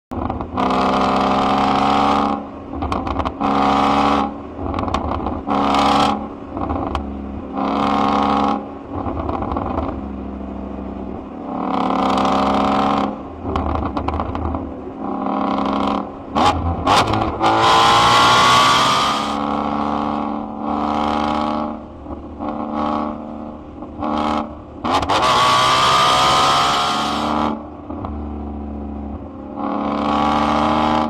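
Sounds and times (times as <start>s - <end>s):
car engine revving: 0.1s - 31.0s
exhaust popping: 13.4s - 19.4s.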